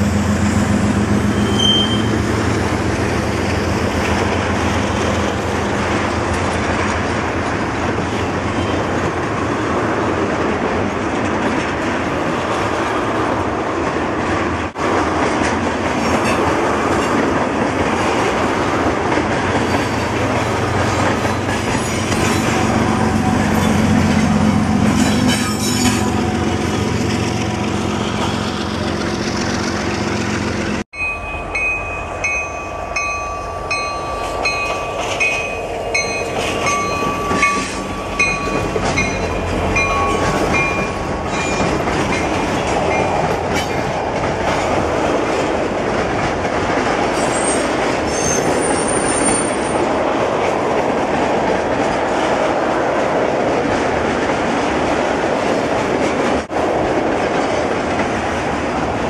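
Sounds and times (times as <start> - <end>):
diesel locomotive engine drone: 0.0 - 59.0
train wheels rumbling and clattering: 0.0 - 59.0
high ding: 31.0 - 40.9.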